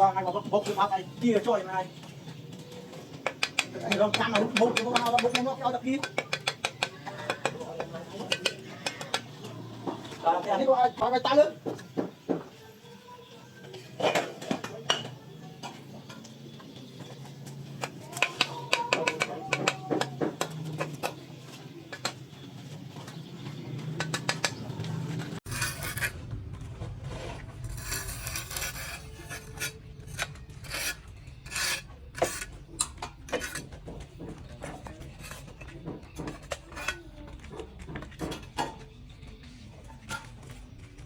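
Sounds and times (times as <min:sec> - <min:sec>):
hand tools scraping plaster: 0:25.4 - 0:26.2, 0:27.0 - 0:32.6.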